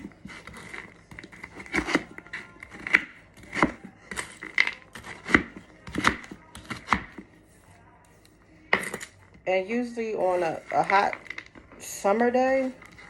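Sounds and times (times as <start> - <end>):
knife chopping on cutting board: 0.0 - 7.2
scraping and mixing: 0.0 - 13.0.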